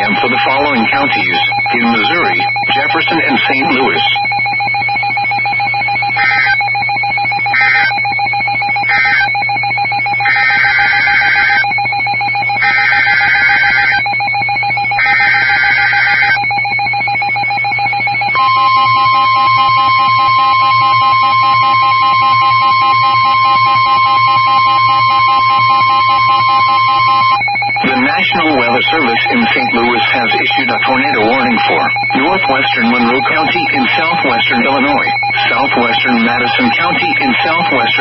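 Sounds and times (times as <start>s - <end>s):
radio hum and whine: 0.0s - 4.9s, 18.3s - 38.0s
single-pitch warning alarm tone: 0.0s - 38.0s
screechy digital data bursts: 6.2s - 6.6s, 7.6s - 7.9s, 8.9s - 9.3s, 10.2s - 11.6s, 12.6s - 14.0s, 15.0s - 16.4s, 26.8s - 38.0s.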